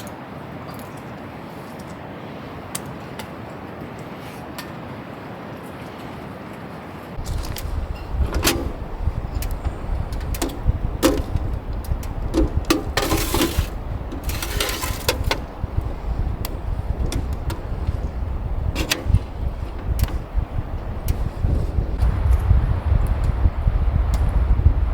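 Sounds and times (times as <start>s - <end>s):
wind buffeting microphone: 7.0s - 24.9s
rustling: 12.6s - 22.0s
clicks: 18.7s - 21.5s.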